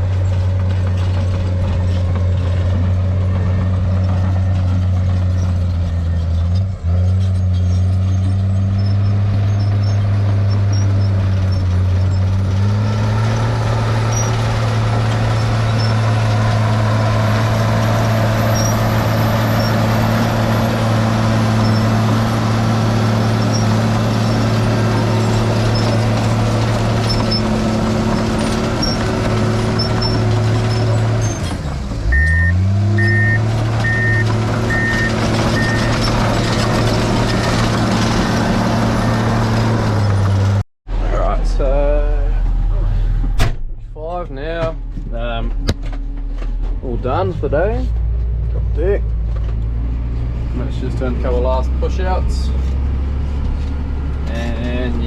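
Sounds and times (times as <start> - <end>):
bulldozer diesel engine running: 0.0 - 55.0
reversing alarm beeping: 32.1 - 36.0.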